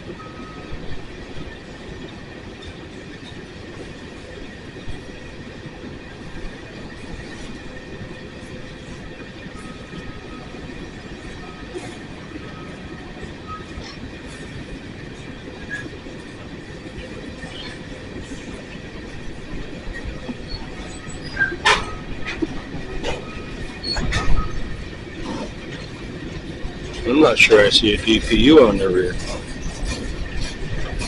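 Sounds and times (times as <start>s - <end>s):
train wheels rumbling on track: 0.0s - 31.0s
faint wheel squeal: 19.9s - 22.2s, 23.0s - 25.5s.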